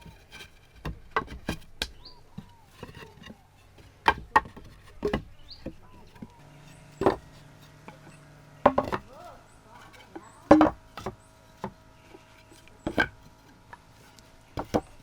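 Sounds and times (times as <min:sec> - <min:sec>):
steady low hum: 0:00.0 - 0:15.0
bird chirps: 0:02.0 - 0:02.3
sharp knocks: 0:10.2 - 0:11.8.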